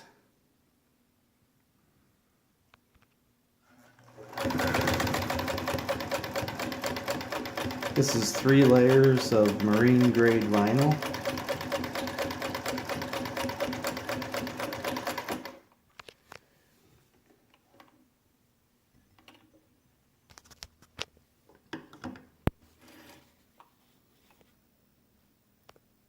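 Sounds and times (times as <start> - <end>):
sewing machine stitching: 3.9 - 15.6.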